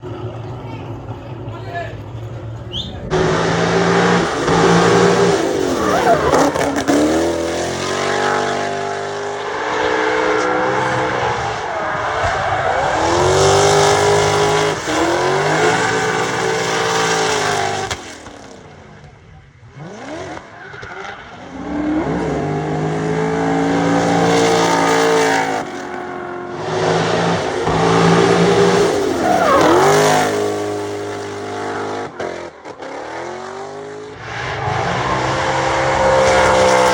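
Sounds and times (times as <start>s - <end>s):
tyres squealing: 2.7s - 3.1s, 3.9s - 9.2s, 27.2s - 32.2s
car engine revving hard: 3.0s - 18.6s, 19.7s - 36.9s.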